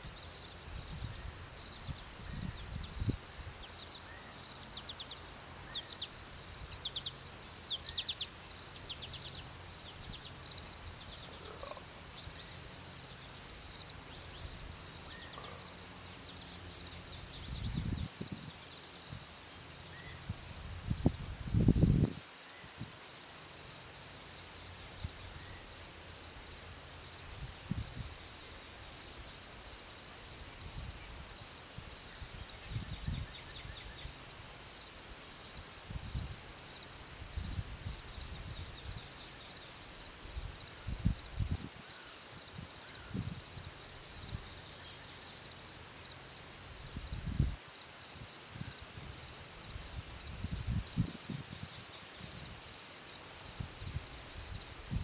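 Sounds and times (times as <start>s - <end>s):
insects chirping in chorus: 0.0s - 55.0s
wind buffeting microphone: 17.5s - 18.6s, 20.6s - 22.2s, 49.8s - 52.4s.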